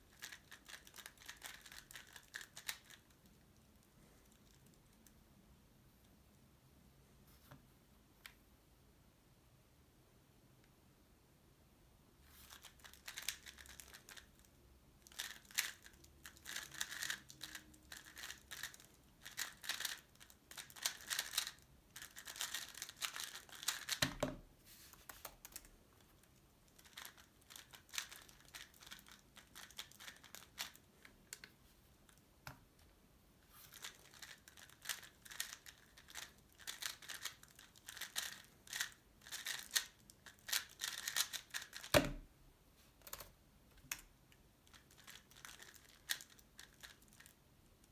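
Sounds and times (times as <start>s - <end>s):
puzzle cube clicking: 40.5s - 42.2s.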